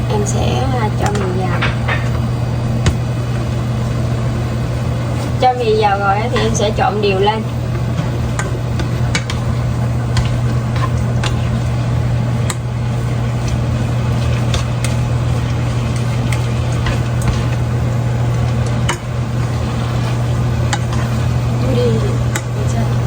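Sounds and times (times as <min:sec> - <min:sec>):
low mechanical hum: 0:00.0 - 0:23.0
pasta stirred in cream sauce: 0:07.8 - 0:23.0
utensil clicking against pan: 0:08.3 - 0:09.5, 0:12.4 - 0:12.6, 0:20.7 - 0:21.2, 0:22.3 - 0:22.6.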